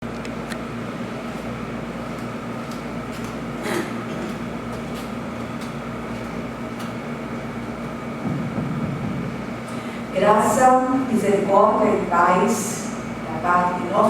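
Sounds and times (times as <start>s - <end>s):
room noise hum and hiss: 0.0s - 14.0s.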